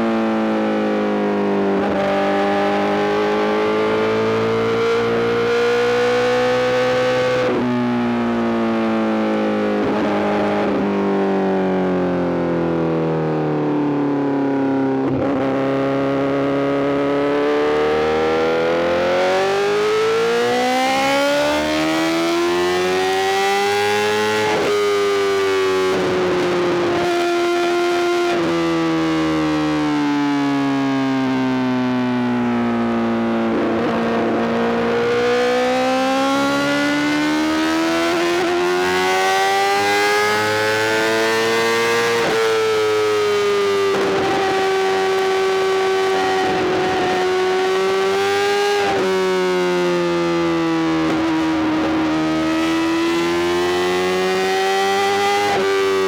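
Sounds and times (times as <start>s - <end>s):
motorcycle engine revving: 33.4s - 49.3s, 50.1s - 56.0s.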